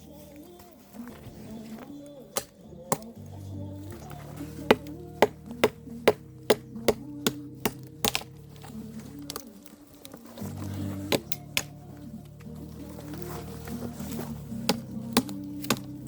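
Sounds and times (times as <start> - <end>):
low bass line: 2.7 - 9.3.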